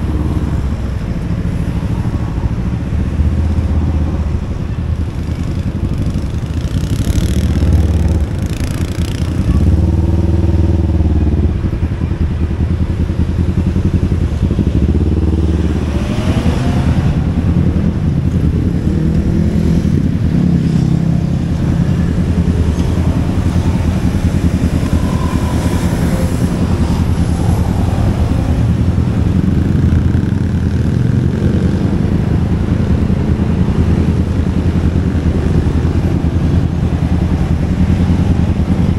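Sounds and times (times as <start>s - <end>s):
road and wind hiss: 0.0s - 38.9s
motor scooter engine revving: 13.4s - 38.9s.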